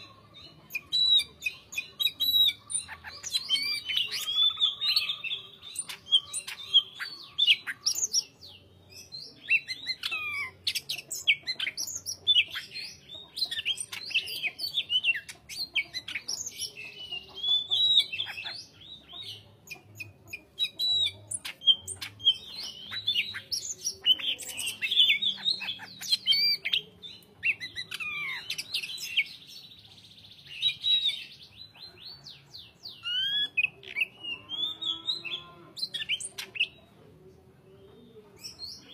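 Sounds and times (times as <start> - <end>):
bird singing chirps and whistles: 0.7 - 8.3, 32.9 - 36.8.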